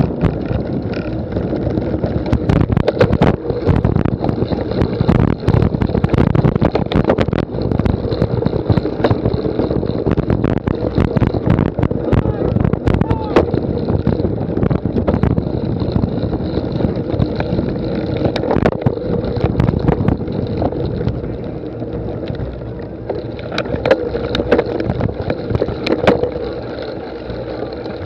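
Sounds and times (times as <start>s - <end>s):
sharp clicks and knocks: 0.0s - 28.0s
wind rumbling on microphone: 0.0s - 28.0s.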